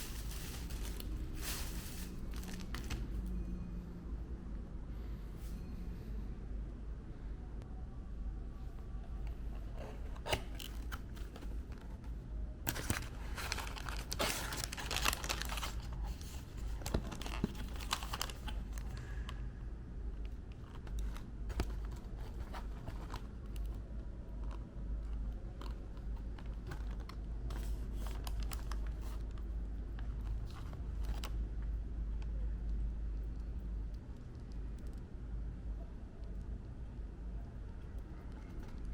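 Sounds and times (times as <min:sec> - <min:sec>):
paper packaging crinkling: 0:00.0 - 0:03.3, 0:09.6 - 0:12.1, 0:12.7 - 0:19.2, 0:20.7 - 0:23.8, 0:25.6 - 0:31.4.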